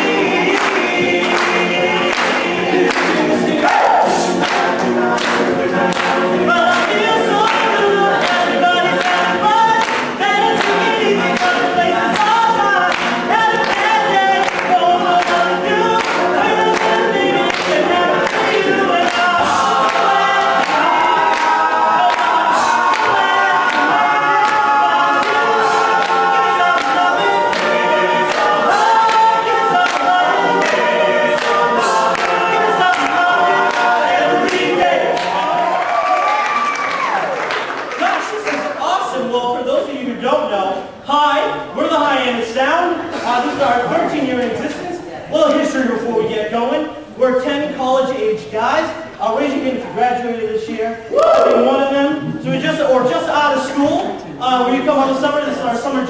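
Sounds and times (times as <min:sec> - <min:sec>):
male a cappella group singing: 0:00.0 - 0:35.8.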